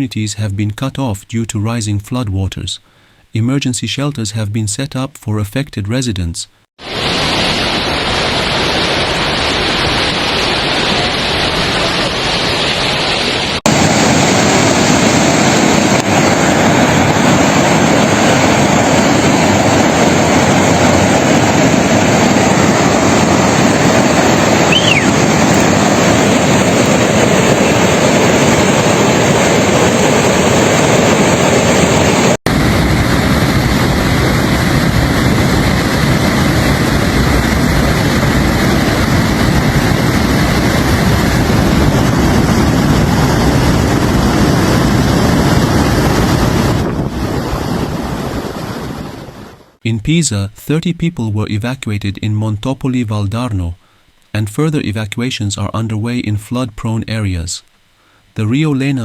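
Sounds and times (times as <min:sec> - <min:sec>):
rushing floodwater: 0:06.8 - 0:47.8.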